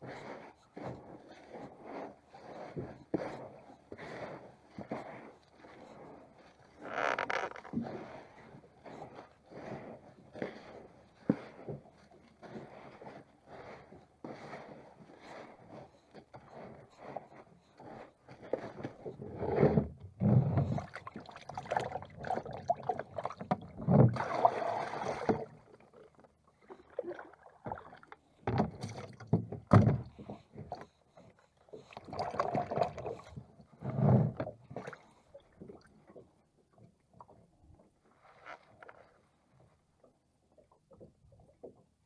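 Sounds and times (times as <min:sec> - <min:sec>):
knocks and bumps aboard boat: 0:19.6 - 0:21.0, 0:28.4 - 0:30.9.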